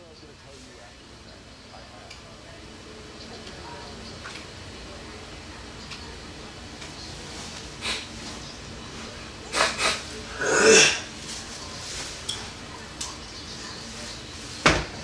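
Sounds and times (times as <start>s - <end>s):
person sneezing: 9.5s - 11.1s.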